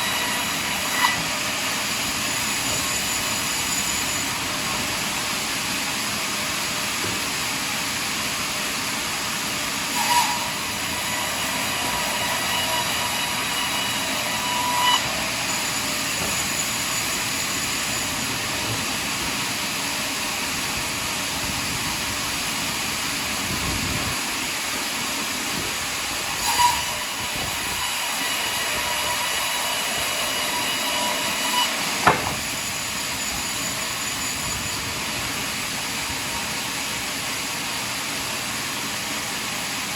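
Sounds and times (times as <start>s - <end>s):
saw whine: 0.0s - 39.9s
sawmill running: 0.0s - 39.9s
short knock: 32.0s - 32.5s.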